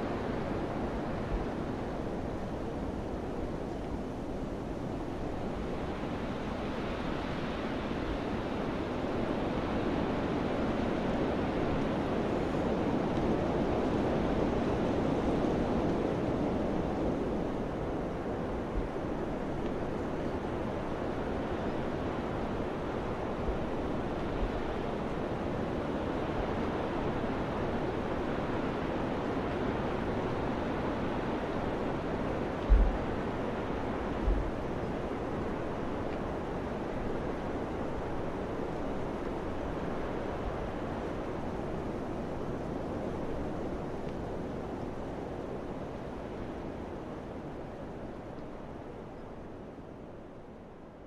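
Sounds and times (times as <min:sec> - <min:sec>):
wind buffeting microphone: 0:31.3 - 0:36.4.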